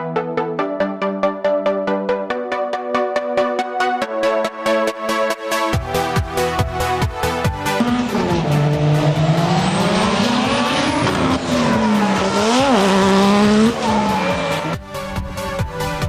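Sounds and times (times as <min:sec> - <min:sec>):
car engine revving: 0:07.6 - 0:15.2.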